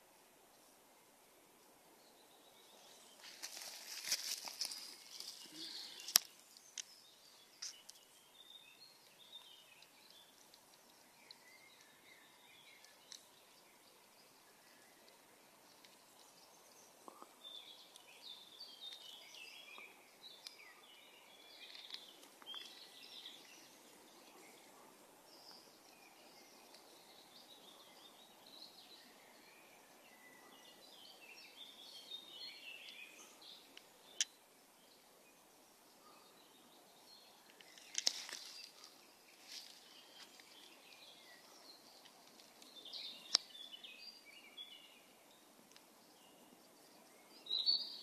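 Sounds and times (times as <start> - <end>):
faint songbirds singing: 0.0 - 48.0.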